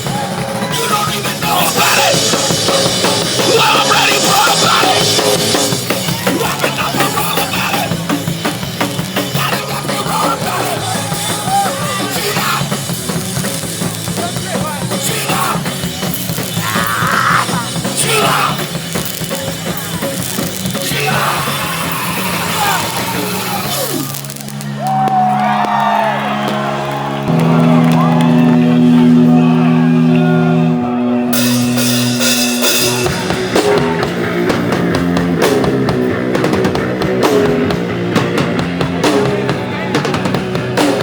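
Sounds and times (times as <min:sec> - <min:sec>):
punk band playing live: 0:00.0 - 0:41.0
person yelling vocals: 0:03.5 - 0:05.1, 0:16.5 - 0:18.8, 0:20.8 - 0:24.1.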